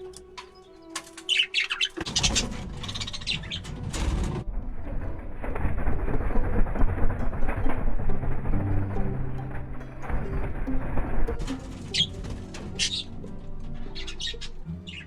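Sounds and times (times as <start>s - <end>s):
budgerigars chirping: 0.6s - 3.7s, 11.9s - 15.0s
low rumbling noise: 2.4s - 15.0s.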